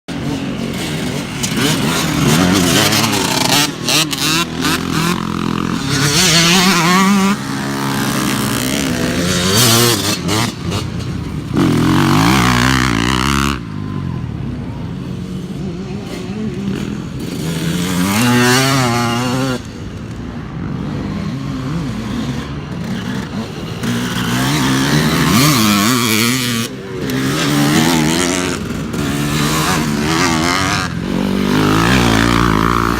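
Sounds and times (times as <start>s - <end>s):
dirt bike engines revving: 0.1s - 32.9s.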